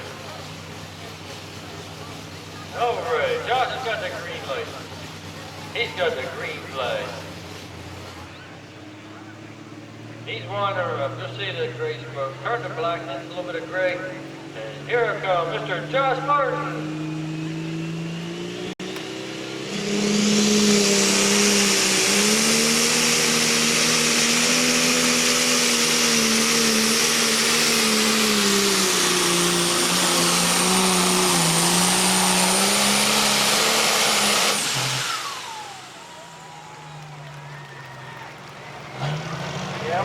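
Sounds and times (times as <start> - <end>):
tractor engine at full throttle: 0.0 - 40.0
turbocharger whine: 0.0 - 40.0.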